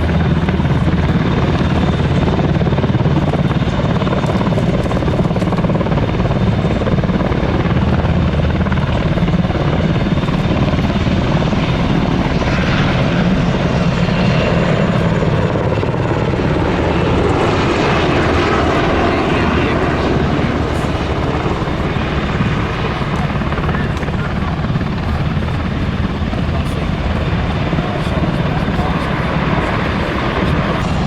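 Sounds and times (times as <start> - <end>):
helicopter rotor chopping: 0.0 - 31.0
turbine running: 16.4 - 31.0.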